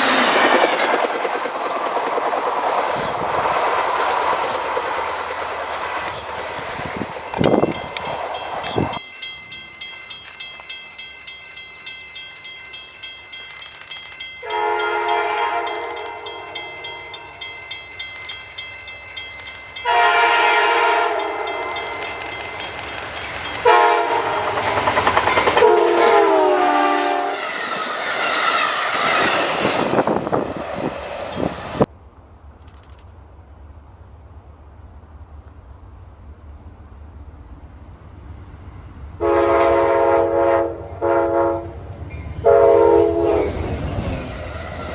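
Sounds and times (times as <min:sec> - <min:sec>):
train wheels clacking over rail joints: 0:00.0 - 0:09.1, 0:12.4 - 0:31.9
rush of passing train: 0:00.0 - 0:44.9
train horn blasts: 0:14.4 - 0:17.4, 0:19.8 - 0:22.3, 0:23.6 - 0:24.8, 0:25.5 - 0:27.6, 0:39.2 - 0:41.8, 0:42.4 - 0:43.7.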